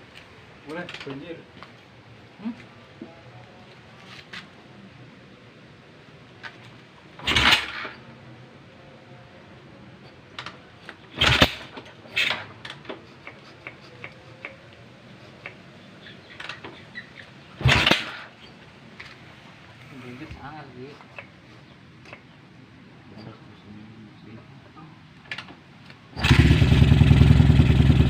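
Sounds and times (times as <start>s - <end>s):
motorcycle engine kick-start: 7.2s - 8.0s, 11.1s - 13.0s, 16.3s - 18.5s, 26.2s - 28.0s.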